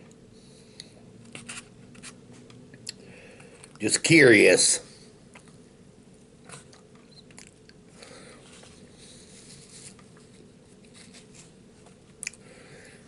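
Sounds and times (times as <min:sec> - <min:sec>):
soft rustles: 0:08.4 - 0:12.2
faint chewing: 0:12.1 - 0:12.4.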